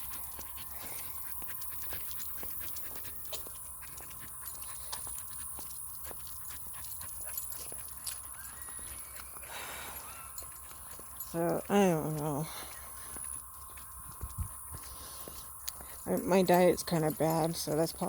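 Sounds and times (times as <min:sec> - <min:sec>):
small clicks and ticks: 0:00.0 - 0:08.4
dog panting: 0:00.0 - 0:18.0.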